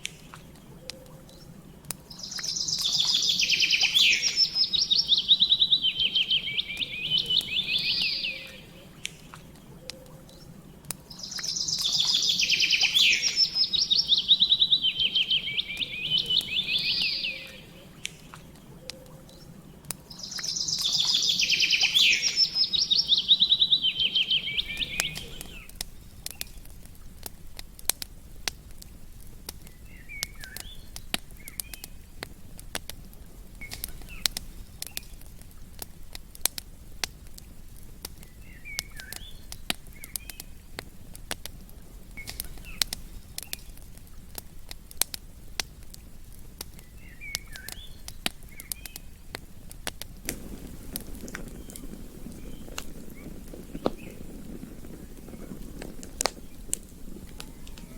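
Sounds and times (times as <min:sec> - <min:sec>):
faint bird chirps: 0:00.0 - 0:26.6, 0:29.6 - 0:32.2, 0:38.1 - 0:40.7, 0:46.7 - 0:49.3, 0:50.4 - 0:57.9
campfire crackling: 0:00.0 - 0:57.9
songbird singing trills: 0:00.1 - 0:26.7, 0:29.6 - 0:32.2, 0:33.6 - 0:35.2, 0:37.4 - 0:40.8, 0:42.0 - 0:43.8, 0:46.7 - 0:49.4, 0:50.3 - 0:57.9.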